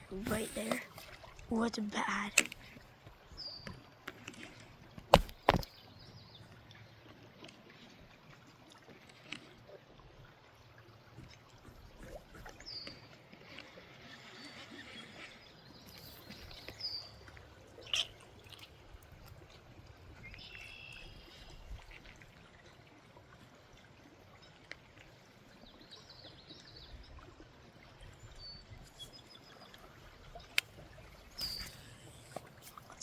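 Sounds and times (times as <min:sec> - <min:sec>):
creek water trickling: 0:00.0 - 0:33.0
sharp click: 0:31.4 - 0:32.5.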